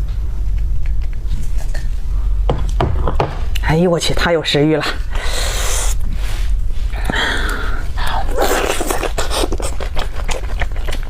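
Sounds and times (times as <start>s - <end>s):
chewing: 8.3s - 11.0s.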